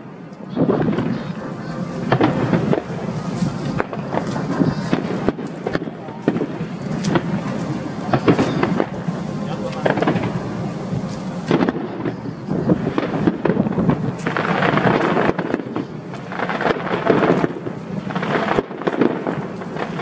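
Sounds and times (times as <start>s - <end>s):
fireworks crackling: 0.0s - 20.0s
fireworks booms: 0.5s - 20.0s.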